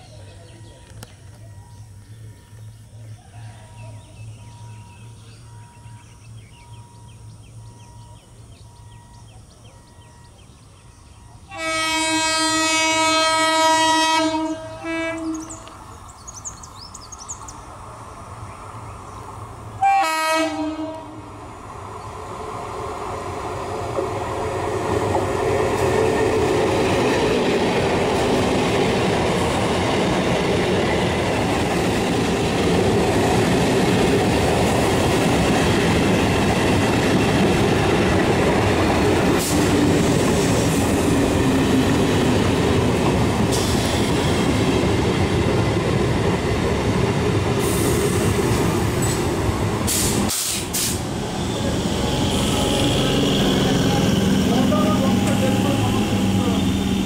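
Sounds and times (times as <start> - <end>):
train rumble and wheel clatter: 0.0 - 57.0
train horn blast: 11.5 - 15.7, 19.8 - 21.3, 51.5 - 57.0.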